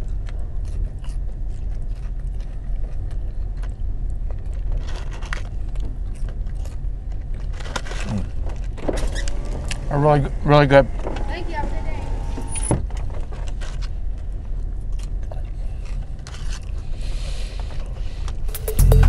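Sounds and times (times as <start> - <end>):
man chewing fries: 0.0 - 8.8, 13.5 - 19.0.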